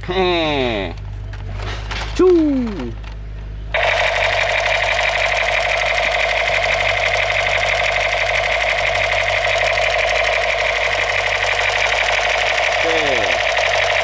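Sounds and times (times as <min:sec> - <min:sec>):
toy gun buzzing rattle: 0:03.8 - 0:14.0.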